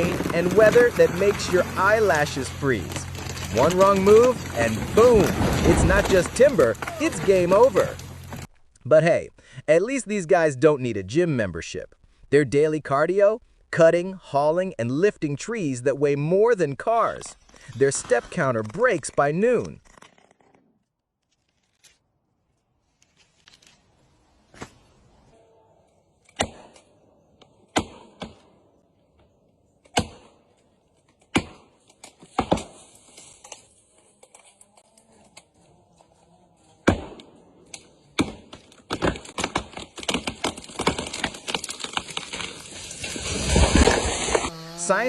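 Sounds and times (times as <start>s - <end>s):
sharp knocks and cracks: 0.0s - 8.5s, 26.3s - 28.5s, 29.8s - 33.6s, 36.8s - 44.5s.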